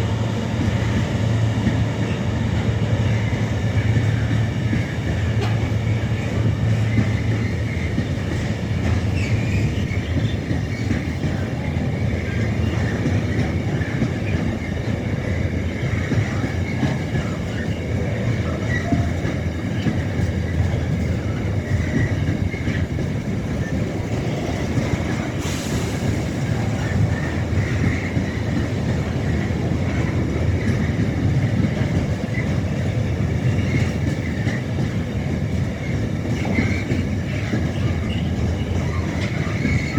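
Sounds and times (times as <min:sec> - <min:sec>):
freight train rumbling past: 0:00.0 - 0:39.9
wheels clacking over rail joints: 0:00.7 - 0:39.9.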